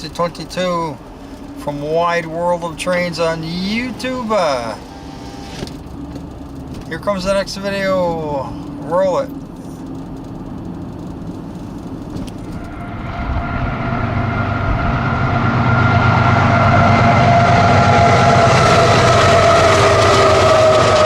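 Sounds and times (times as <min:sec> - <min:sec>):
freight train rumbling: 0:11.8 - 0:21.0.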